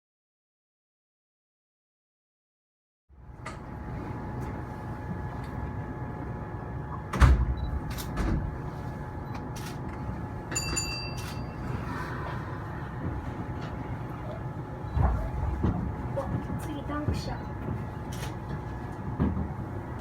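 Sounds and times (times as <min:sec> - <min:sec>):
train electrical hum: 0:03.1 - 0:20.0
sliding doors thudding shut: 0:07.1 - 0:08.7, 0:14.8 - 0:20.0.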